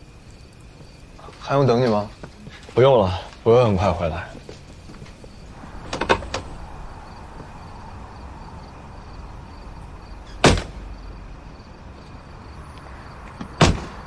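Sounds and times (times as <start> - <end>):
door banging shut: 5.8 - 6.6, 10.4 - 10.8, 13.4 - 14.0.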